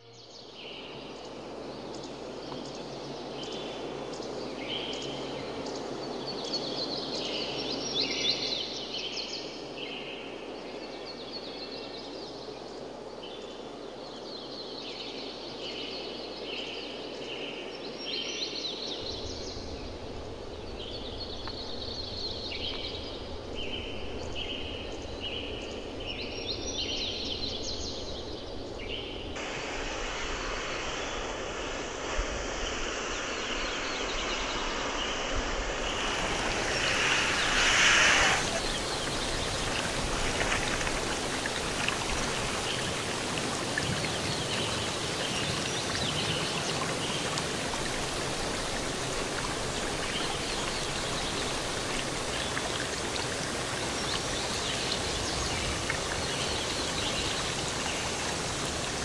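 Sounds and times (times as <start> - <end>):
background noise: 0.0 - 59.0
birds singing: 32.0 - 58.6.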